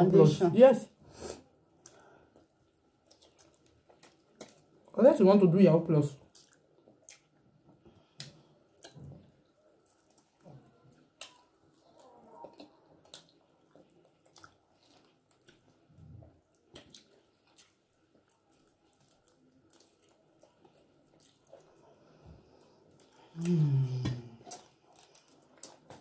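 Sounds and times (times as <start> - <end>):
wet chewing and lip-smacking: 1.7 - 5.0, 6.2 - 26.0
person humming: 23.3 - 24.4.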